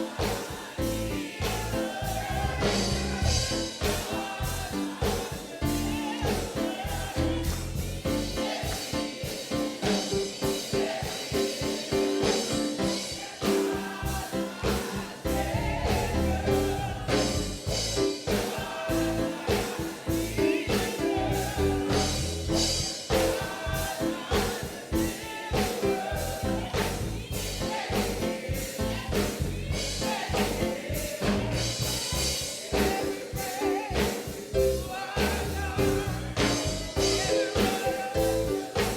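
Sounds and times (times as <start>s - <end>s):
gospel singing with band: 0.0s - 38.9s.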